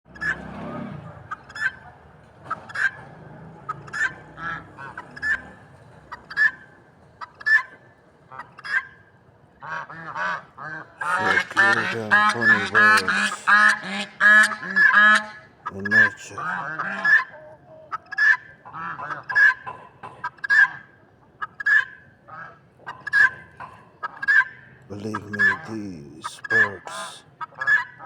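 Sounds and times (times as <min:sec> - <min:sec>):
large waterfowl honking: 0:09.6 - 0:17.4, 0:25.4 - 0:25.6.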